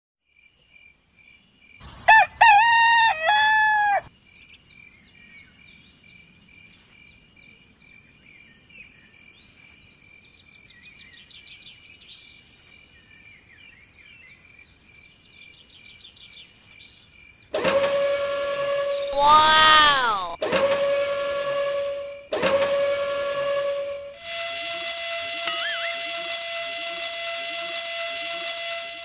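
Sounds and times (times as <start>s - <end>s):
rooster crowing: 2.0s - 4.1s, 19.1s - 20.4s
high insect-like buzz: 25.5s - 26.3s.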